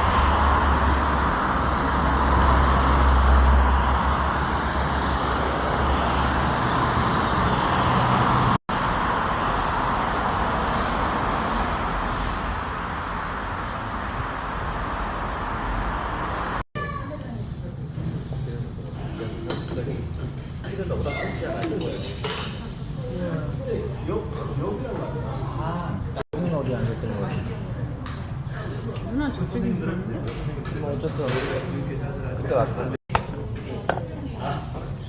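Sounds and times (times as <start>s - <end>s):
car travel rumble and hiss: 0.0s - 16.6s.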